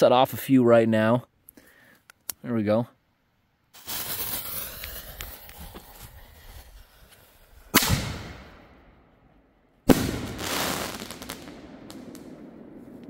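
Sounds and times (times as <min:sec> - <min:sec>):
firework bangs echoing: 0:03.8 - 0:05.7, 0:09.9 - 0:13.0
firework fuse hissing: 0:03.8 - 0:07.9.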